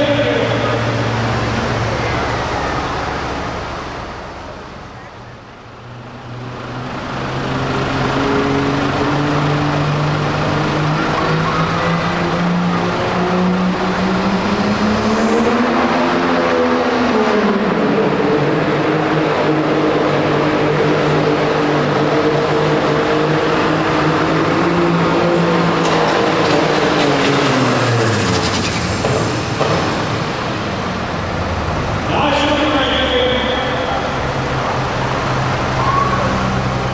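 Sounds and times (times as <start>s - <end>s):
diesel truck engine under full load: 0.0s - 36.9s.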